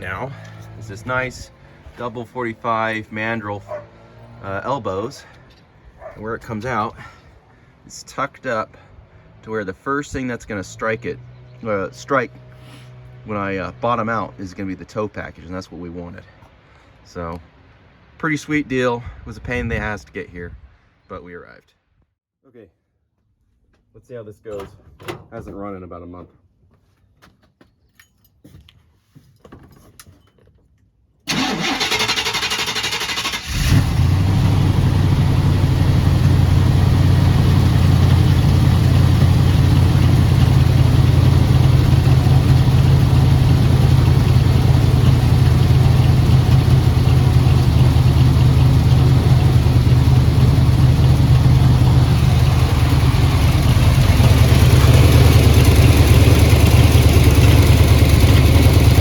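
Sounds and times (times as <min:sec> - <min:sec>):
car engine idling: 0:00.0 - 0:07.9, 0:31.3 - 0:59.0.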